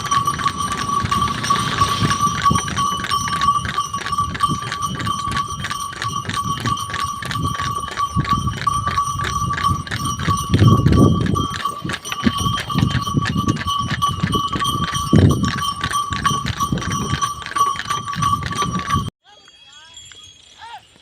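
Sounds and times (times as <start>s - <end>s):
cart rumbling: 0.0s - 19.1s
hooves clopping in sand: 0.0s - 21.0s.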